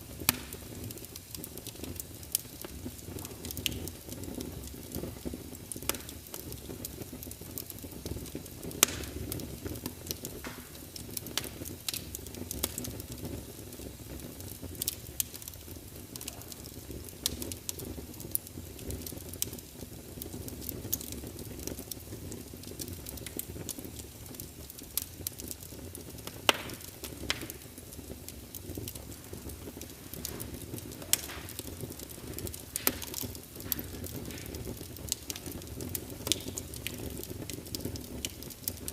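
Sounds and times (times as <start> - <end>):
burning wood crackling and popping: 0.0 - 38.9
fire flames hissing: 0.0 - 38.9.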